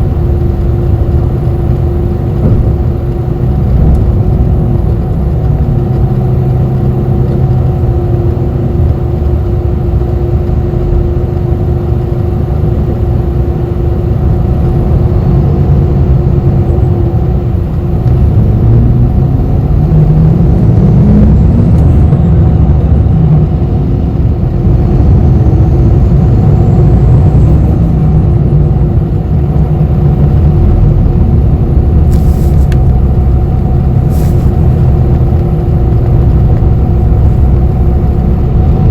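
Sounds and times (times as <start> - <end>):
bus engine and road rumble: 0.0 - 38.9
constant hum: 0.0 - 38.9
brief high hiss: 32.1 - 32.7, 34.1 - 34.6.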